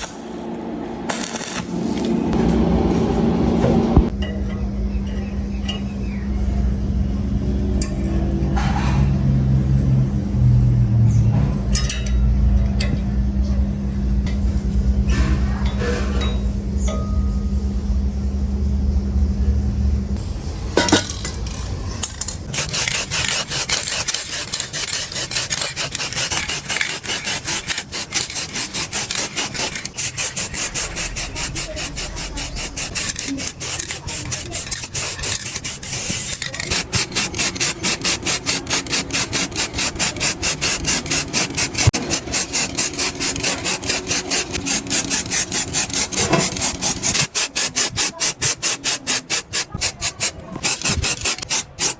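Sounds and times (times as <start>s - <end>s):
rubbing strokes of hand filing: 22.6s - 51.9s.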